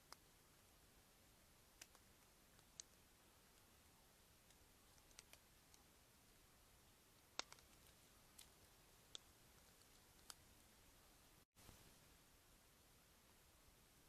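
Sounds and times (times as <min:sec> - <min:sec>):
faint sharp clicks: 0:00.0 - 0:00.3, 0:01.8 - 0:03.7, 0:04.4 - 0:05.9, 0:07.2 - 0:10.5.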